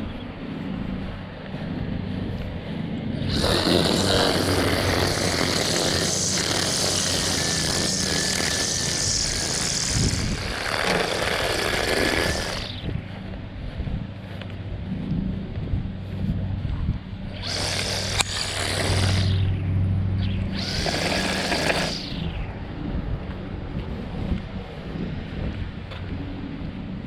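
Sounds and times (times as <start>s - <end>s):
string trimmer whining: 1.6s - 13.4s, 17.2s - 22.6s.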